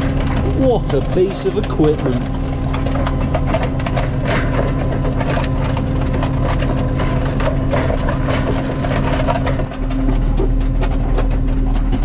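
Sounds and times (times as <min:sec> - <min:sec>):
roller crunching over ballast: 0:00.0 - 0:12.0
tractor engine running: 0:00.0 - 0:12.0.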